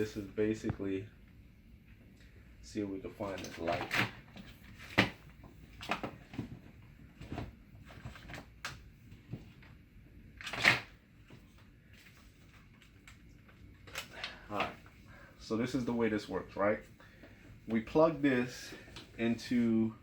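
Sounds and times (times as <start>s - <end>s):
computer hardware being handled: 10.4s - 14.8s.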